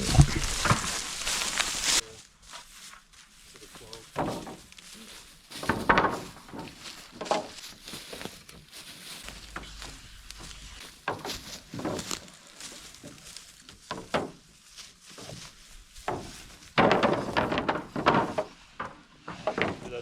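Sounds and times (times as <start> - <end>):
wooden lumber knocks and thuds: 0.0 - 1.3, 4.1 - 4.7, 5.5 - 8.4, 10.4 - 12.3, 13.0 - 14.5, 15.2 - 20.0
wood clattering: 0.0 - 2.0, 4.0 - 4.8, 5.5 - 14.5, 15.2 - 20.0.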